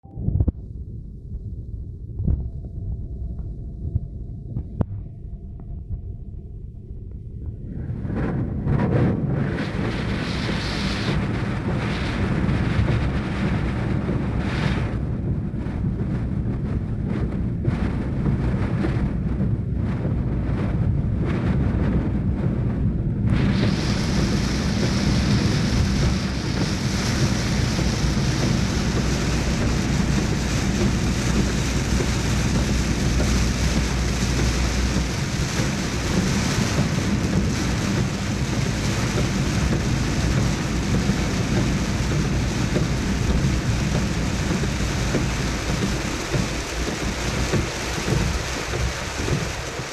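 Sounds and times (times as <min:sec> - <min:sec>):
steady low rumble: 0:00.0 - 0:49.9
wind buffeting microphone: 0:00.0 - 0:49.9
heavy rain: 0:07.5 - 0:49.9.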